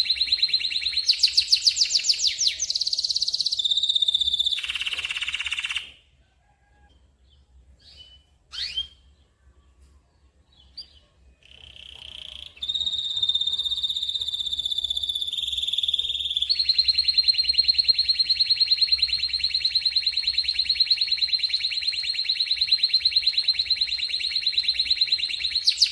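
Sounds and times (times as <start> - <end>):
canary trilling: 0.0 - 6.0, 10.7 - 25.9
faint bird chirps: 0.0 - 19.4.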